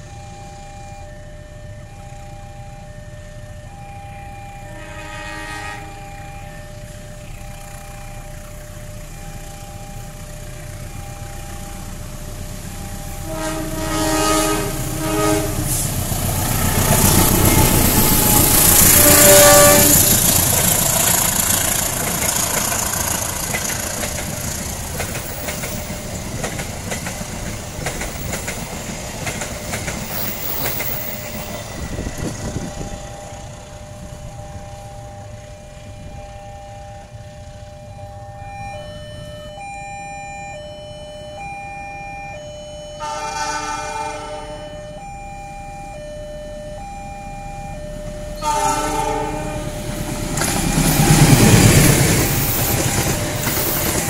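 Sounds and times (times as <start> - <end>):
level-crossing warning tone: 0.0 - 54.0
locomotive horn: 4.1 - 7.4, 13.0 - 22.2, 42.9 - 45.0, 48.3 - 54.0
train carriages rumbling over rails: 4.6 - 36.3, 47.7 - 54.0.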